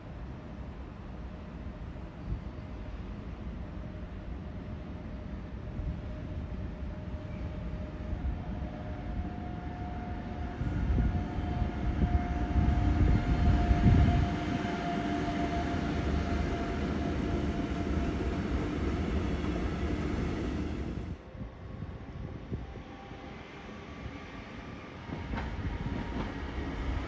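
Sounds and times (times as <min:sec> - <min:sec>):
faint train whine: 0:00.0 - 0:27.0
train rumbling: 0:00.5 - 0:27.0.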